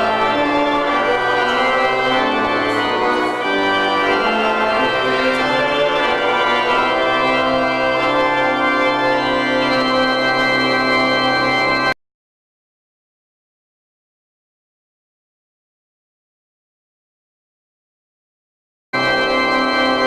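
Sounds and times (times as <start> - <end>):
church organ chords: 0.0 - 12.0, 19.0 - 20.0.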